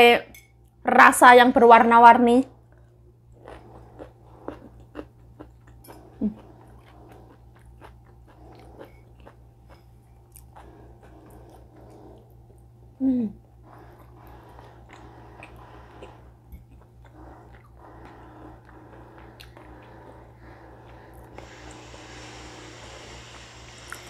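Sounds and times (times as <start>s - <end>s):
person chewing crunchy food: 2.8s - 12.8s, 13.5s - 22.1s
low voice hum: 12.9s - 13.6s.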